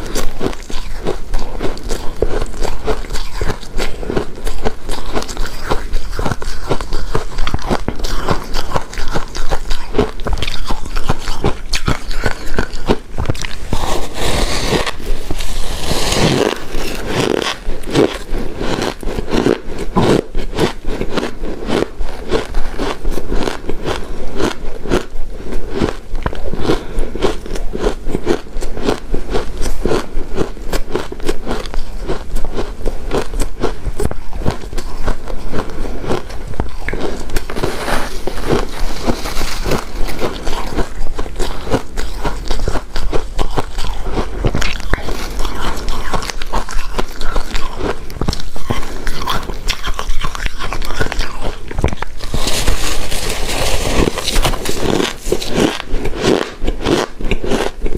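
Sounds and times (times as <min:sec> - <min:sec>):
crunching and chewing ice: 0:00.0 - 0:57.9
scraping sound: 0:13.5 - 0:18.6, 0:37.4 - 0:40.5.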